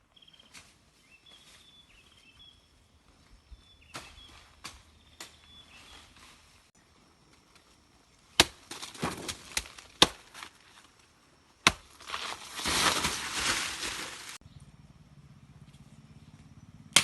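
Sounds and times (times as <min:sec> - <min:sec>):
sharp chopping strikes: 0:08.4 - 0:10.3, 0:11.6 - 0:12.0
crunching rustling noise: 0:11.8 - 0:14.4.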